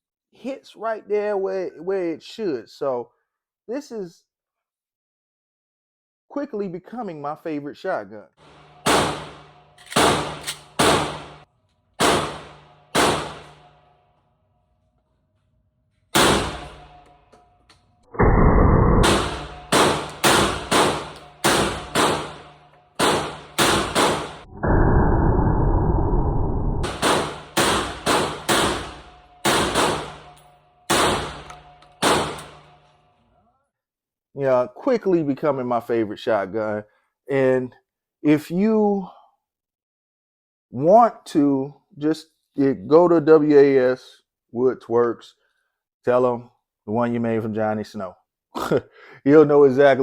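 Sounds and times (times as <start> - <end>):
shotgun shots with echo: 8.5 - 11.4, 12.0 - 13.7, 16.2 - 17.0, 19.0 - 24.5, 26.8 - 32.8
dense muffled noise: 18.2 - 19.6, 24.5 - 26.9.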